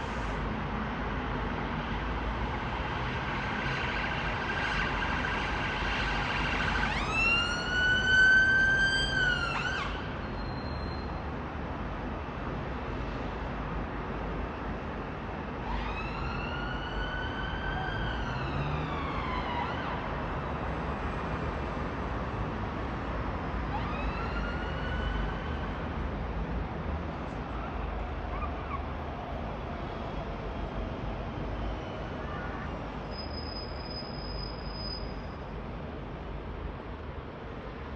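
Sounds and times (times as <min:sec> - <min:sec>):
outdoor traffic: 0:00.0 - 0:37.9
distant siren wailing: 0:03.8 - 0:10.7, 0:15.6 - 0:20.1, 0:23.6 - 0:25.6.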